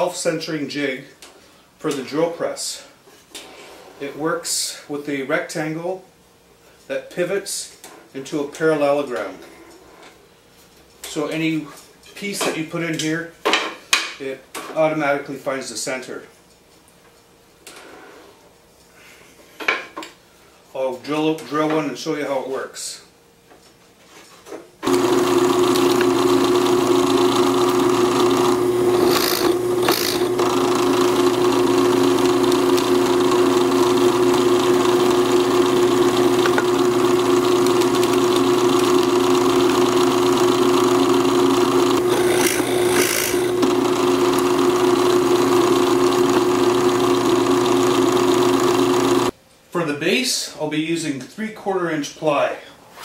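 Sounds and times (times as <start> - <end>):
drill bit rasping into wood: 24.8 - 49.3
drill press motor humming: 24.8 - 49.3.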